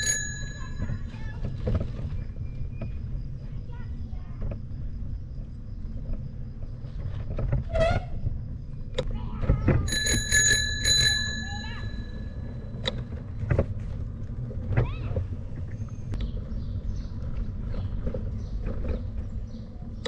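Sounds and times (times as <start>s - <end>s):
bicycle bell ringing: 0.0s - 1.3s, 9.9s - 12.6s
bike rolling rumble: 0.0s - 20.0s.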